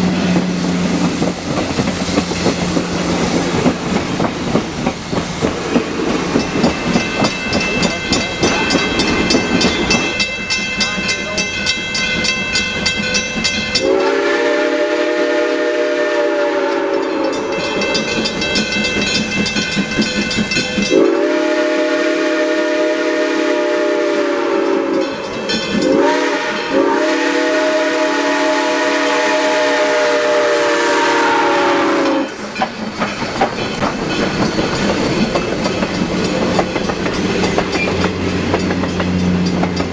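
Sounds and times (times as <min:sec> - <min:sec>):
train rumble and clickety-clack: 0:00.0 - 0:39.9
steam locomotive whistle: 0:13.7 - 0:18.0, 0:20.8 - 0:32.6.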